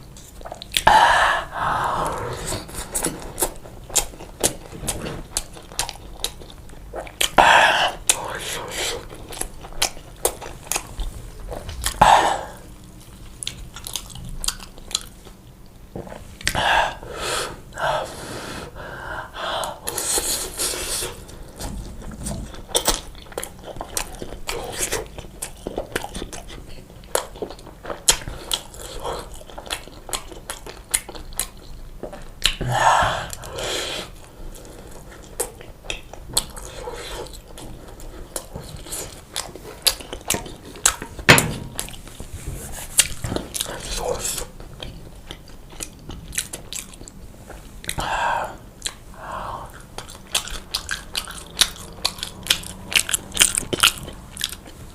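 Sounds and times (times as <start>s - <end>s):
person chewing food: 0.0s - 17.0s, 19.6s - 54.9s.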